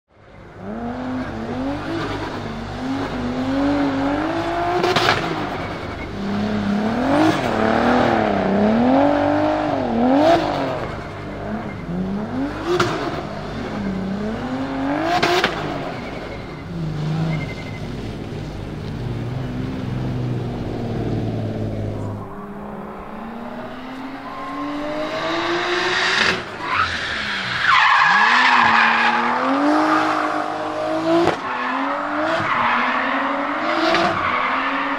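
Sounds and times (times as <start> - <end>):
car engine revving: 0.5 - 34.9
tyre squeal: 15.4 - 18.0.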